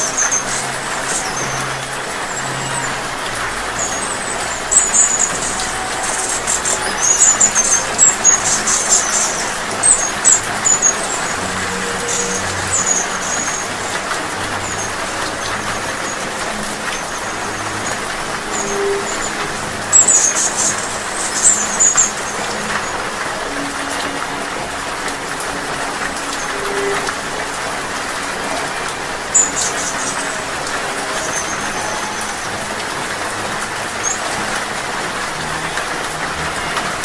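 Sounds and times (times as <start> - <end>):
hummingbird chirps: 0.0 - 24.1, 28.2 - 32.6
steady rain: 0.0 - 37.0.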